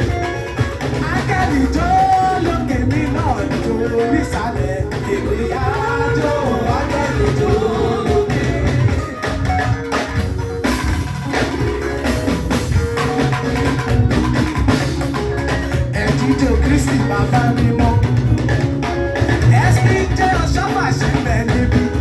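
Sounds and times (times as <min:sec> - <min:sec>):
band with drums and bass: 0:00.0 - 0:22.0
voices singing a hymn: 0:03.7 - 0:09.4.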